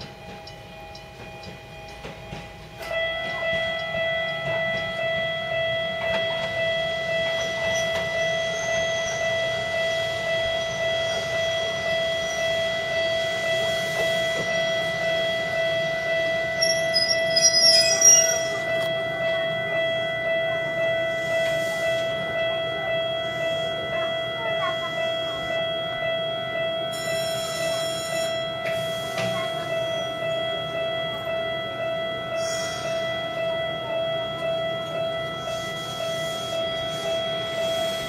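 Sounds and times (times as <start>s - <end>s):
level crossing bell ringing: 0.0s - 38.0s.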